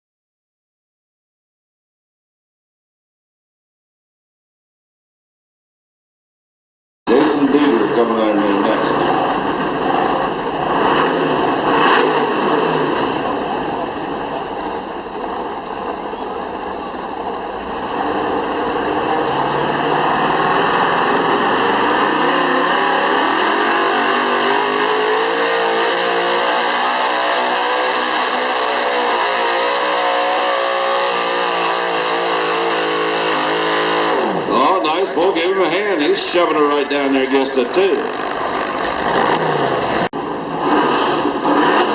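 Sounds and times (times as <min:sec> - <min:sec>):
truck engine at full throttle: 0:07.1 - 0:41.9.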